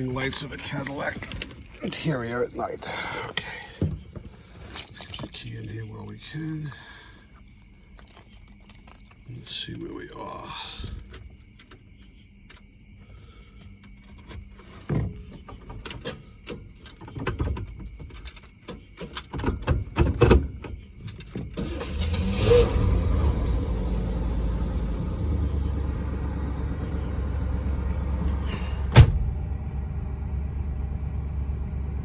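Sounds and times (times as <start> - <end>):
car engine idling: 21.6 - 32.0.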